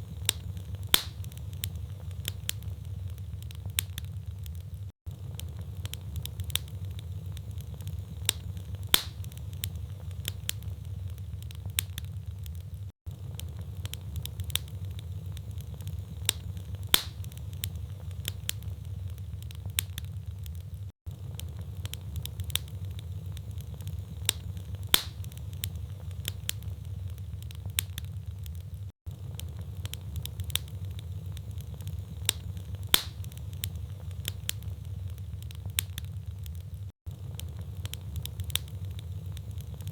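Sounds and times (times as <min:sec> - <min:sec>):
low fire rumble: 0:00.0 - 0:39.9
wood fire crackling and popping: 0:00.0 - 0:39.9.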